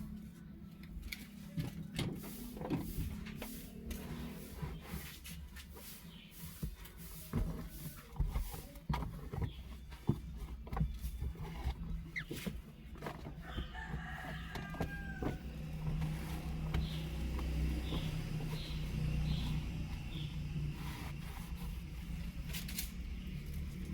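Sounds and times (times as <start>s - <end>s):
clicks and knocks of handling: 0.1s - 4.2s, 6.6s - 20.8s, 21.7s - 23.9s
rooster crowing: 13.4s - 16.6s.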